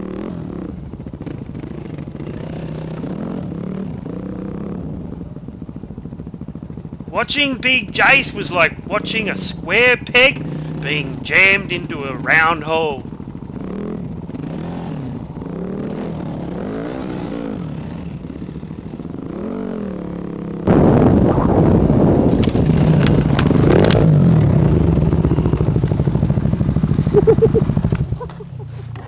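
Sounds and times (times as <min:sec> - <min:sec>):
dirt bike engine revving: 0:07.0 - 0:20.6.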